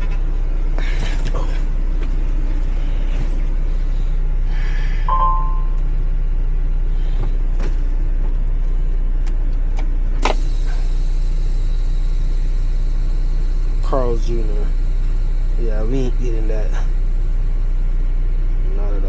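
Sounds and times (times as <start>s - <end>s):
truck engine idling: 0.0s - 19.0s
short beep: 5.1s - 5.8s
sharp click: 10.2s - 10.8s
faint high whine: 10.2s - 19.0s.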